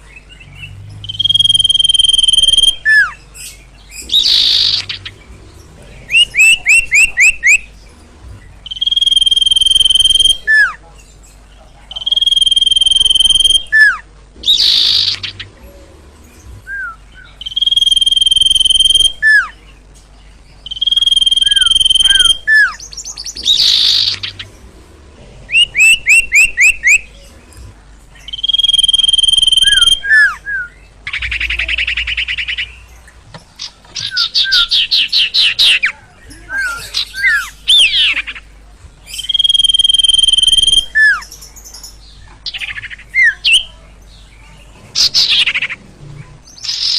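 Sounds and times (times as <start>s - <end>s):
songbird singing whistles and trills: 0.1s - 5.2s, 6.1s - 7.7s, 8.6s - 10.8s, 11.9s - 15.8s, 16.6s - 19.7s, 20.6s - 24.5s, 25.5s - 27.3s, 28.2s - 38.4s, 39.1s - 43.8s, 46.5s - 46.9s.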